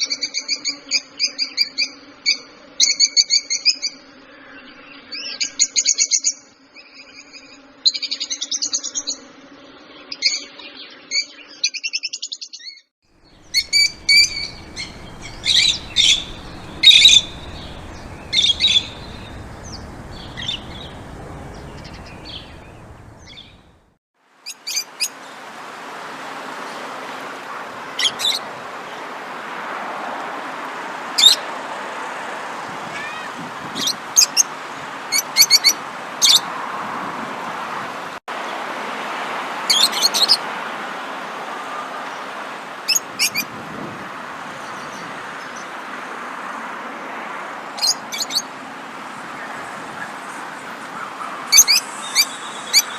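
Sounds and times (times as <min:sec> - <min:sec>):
steady hiss: 0:13.2 - 0:23.8
songbirds chirping: 0:13.2 - 0:24.0
low hum: 0:13.4 - 0:24.0.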